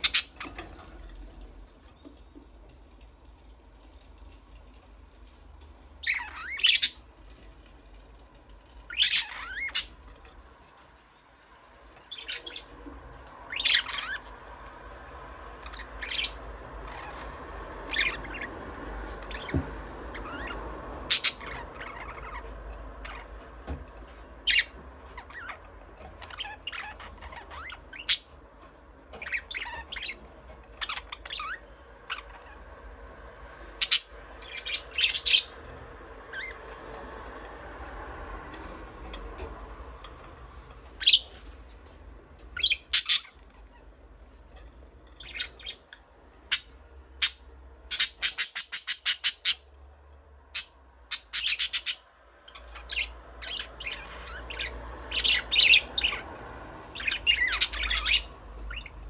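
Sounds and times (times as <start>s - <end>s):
budgerigars chirping and squawking: 0.0s - 1.6s, 6.0s - 7.4s, 8.8s - 10.4s, 12.0s - 37.0s, 37.8s - 49.7s, 50.4s - 59.0s.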